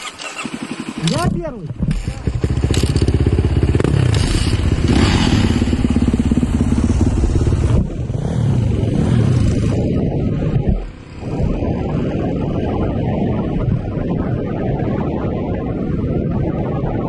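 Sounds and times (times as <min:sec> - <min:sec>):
dirt bike engine revving: 0:01.9 - 0:12.8.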